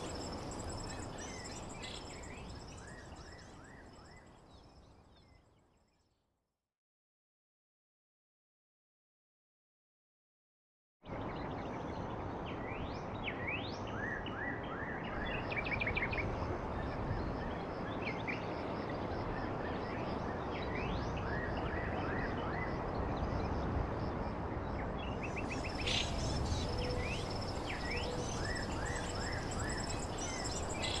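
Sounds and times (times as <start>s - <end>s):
steady background hiss: 0.0s - 4.2s, 22.8s - 31.0s
birds chirping: 25.3s - 31.0s.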